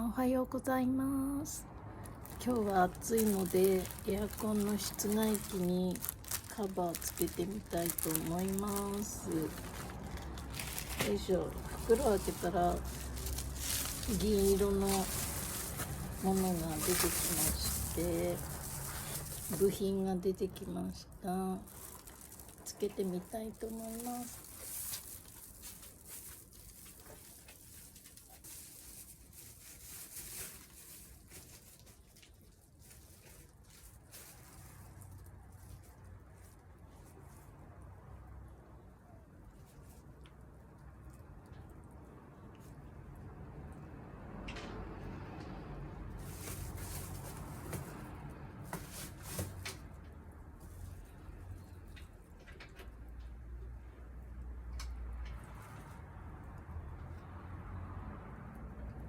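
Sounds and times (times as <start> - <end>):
rustling of plastic cover parts: 2.0 - 37.6, 46.1 - 52.8.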